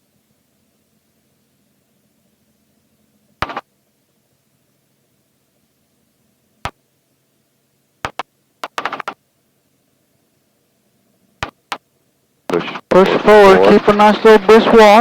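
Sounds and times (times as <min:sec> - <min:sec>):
sharp radio crackles: 0:03.4 - 0:03.6, 0:08.1 - 0:09.2, 0:11.4 - 0:11.8, 0:12.5 - 0:15.0
faint intercom hum: 0:12.5 - 0:15.0.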